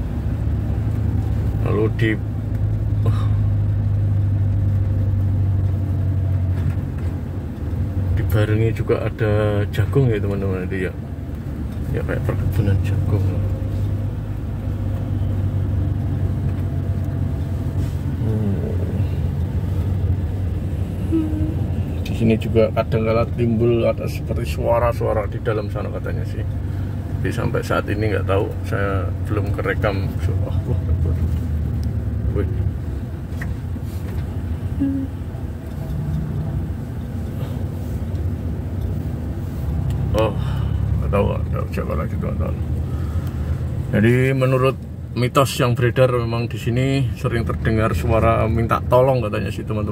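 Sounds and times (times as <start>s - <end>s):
road noise: 0.0s - 49.9s
vehicle engine humming: 0.0s - 49.9s.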